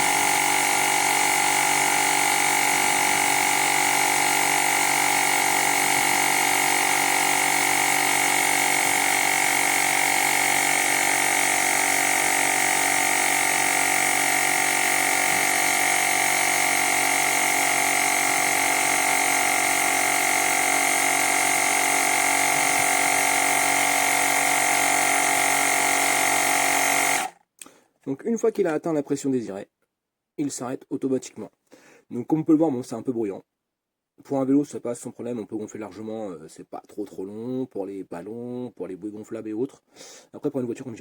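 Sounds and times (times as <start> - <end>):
tyre inflator compressor droning: 0.0 - 27.4.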